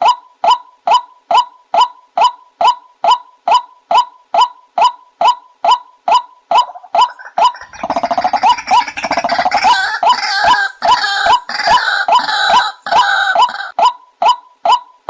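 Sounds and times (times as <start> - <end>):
rapid bird notes: 6.6 - 13.7.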